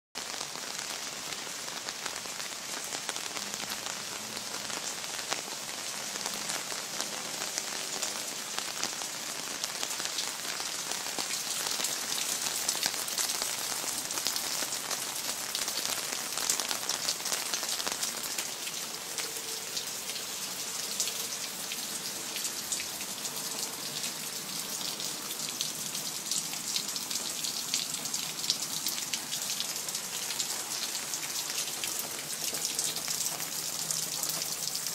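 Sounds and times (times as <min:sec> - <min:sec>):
steady rain: 0:00.2 - 0:34.9.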